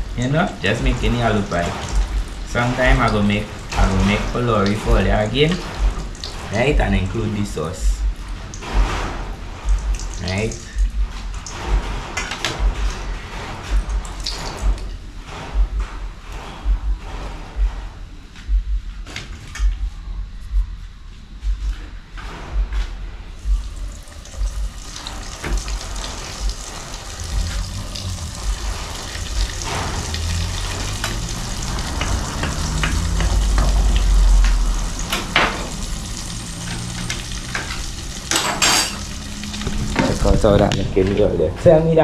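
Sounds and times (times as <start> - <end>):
food sizzling in hot oil: 23.6 - 40.7.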